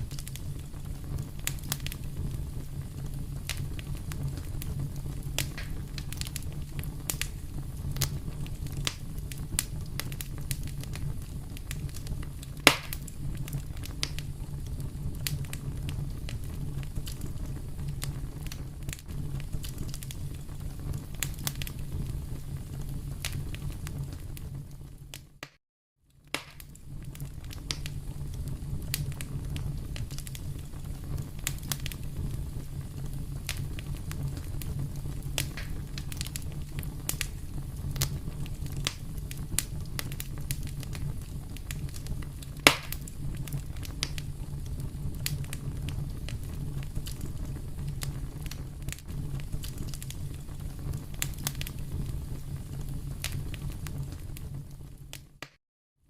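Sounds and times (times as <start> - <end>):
wood fire crackling: 0.0 - 55.6
loud sharp pop: 5.5 - 5.8, 12.6 - 13.0, 26.3 - 26.7, 42.6 - 43.0.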